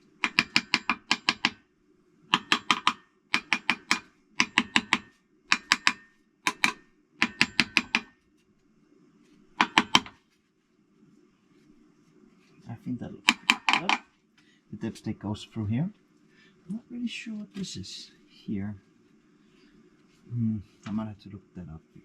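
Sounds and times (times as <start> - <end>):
hammer tapping metal: 0.0 - 1.6, 2.3 - 8.2, 9.6 - 10.2, 13.2 - 14.1.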